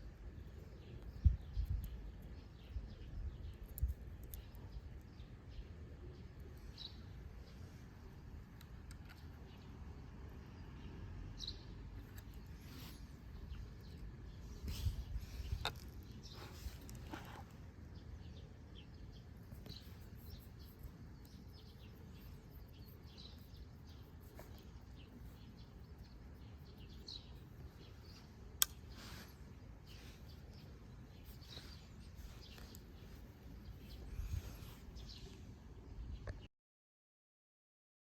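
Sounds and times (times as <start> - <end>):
faint bird chirps: 10.6 - 36.5.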